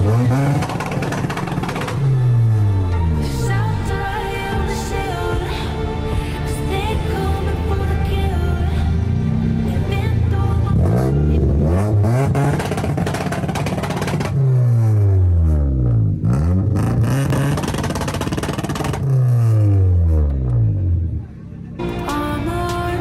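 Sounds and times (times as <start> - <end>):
exhaust pops: 0.0 - 2.0, 11.8 - 15.0, 15.8 - 20.7
car engine revving: 0.0 - 4.0, 7.2 - 21.9.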